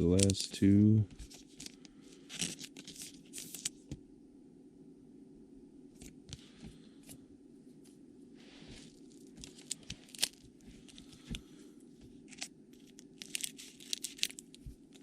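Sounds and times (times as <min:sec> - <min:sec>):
cards clicking: 0:00.1 - 0:00.5
wrapper tearing and crinkling: 0:01.3 - 0:03.8, 0:09.1 - 0:10.5, 0:12.3 - 0:15.0.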